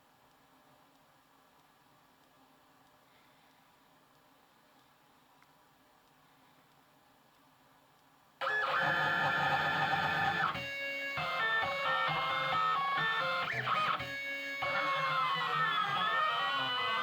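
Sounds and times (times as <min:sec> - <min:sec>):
stepper motors whining: 0:08.4 - 0:17.0.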